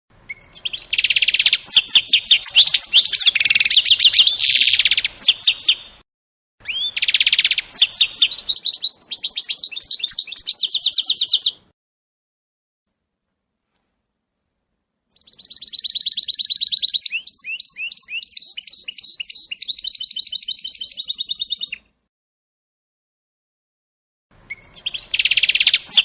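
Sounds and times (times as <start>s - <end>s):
songbird trills and whistles: 0.3s - 6.0s, 6.6s - 11.6s, 15.1s - 21.8s, 24.5s - 26.0s.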